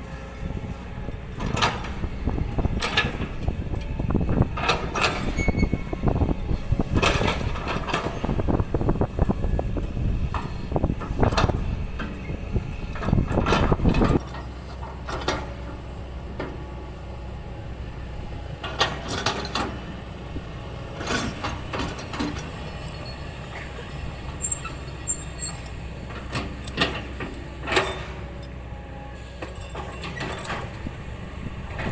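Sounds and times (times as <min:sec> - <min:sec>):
excavator diesel engine running: 0:00.0 - 0:31.9
metal clanks and knocks: 0:25.5 - 0:28.4.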